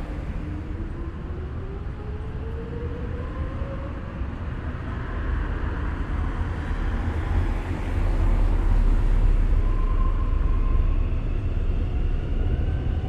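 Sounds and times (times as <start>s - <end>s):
vehicle rumble: 0.0s - 13.0s
faint whine: 8.4s - 13.0s.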